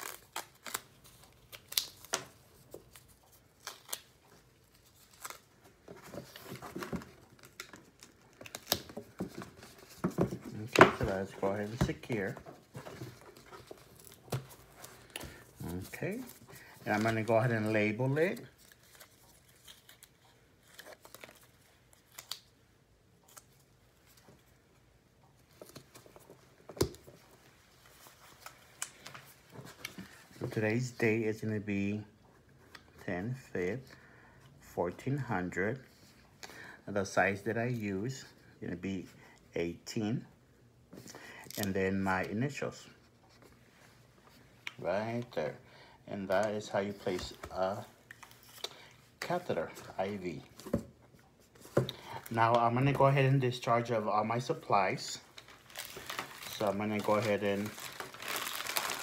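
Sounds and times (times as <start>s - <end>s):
adhesive tape tearing: 0.0s - 2.3s
tape rustling: 0.0s - 22.6s, 46.3s - 59.0s.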